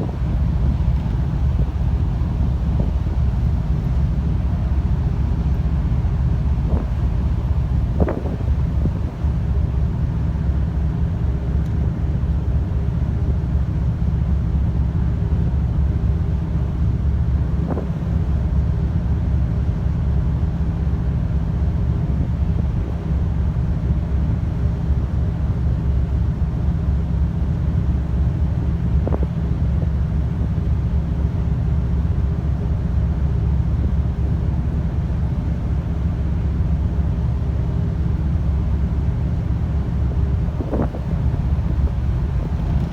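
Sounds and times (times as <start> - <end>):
wind buffeting microphone: 0.0 - 9.8, 17.5 - 18.3, 28.9 - 29.5, 39.7 - 42.9
constant hum: 0.0 - 42.9
ship engine rumble: 0.0 - 42.9.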